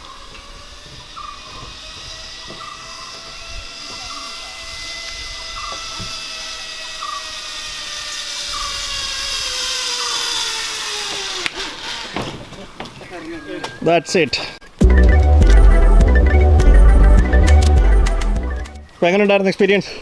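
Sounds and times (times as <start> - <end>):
zipline pulleys whining on cable: 0.0 - 13.4.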